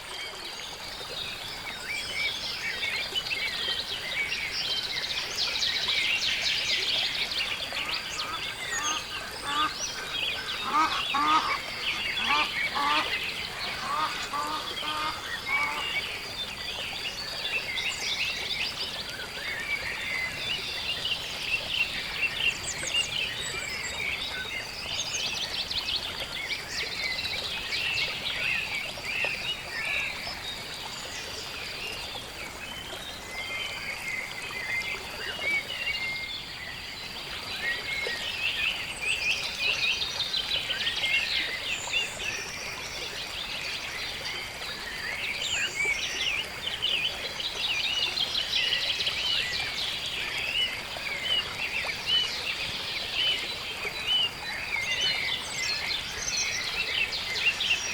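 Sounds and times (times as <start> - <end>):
birds chirping and trilling: 7.7 - 16.1.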